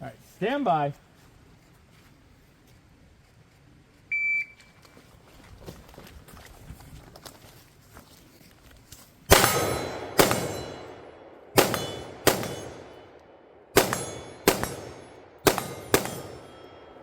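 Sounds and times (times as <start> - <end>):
gunshots: 9.3 - 17.0
metallic ringing of steel targets: 9.3 - 17.0.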